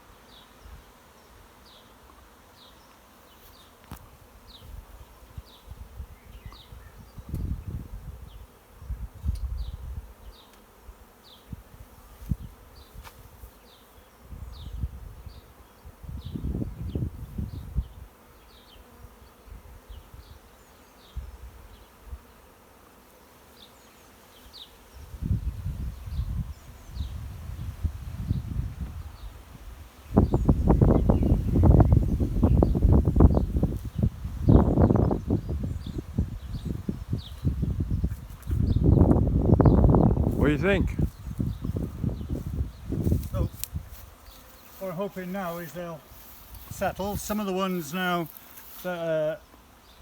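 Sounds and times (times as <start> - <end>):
honeybees buzzing: 0.0 - 50.0
wind buffeting on microphone: 4.0 - 10.1, 14.3 - 18.1, 25.0 - 44.2.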